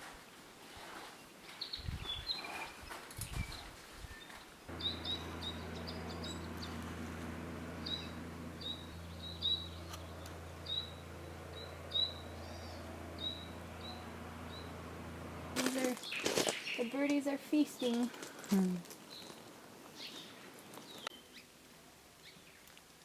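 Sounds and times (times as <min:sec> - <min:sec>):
small birds chirping: 0:01.6 - 0:21.5
steady low hum: 0:04.7 - 0:16.0.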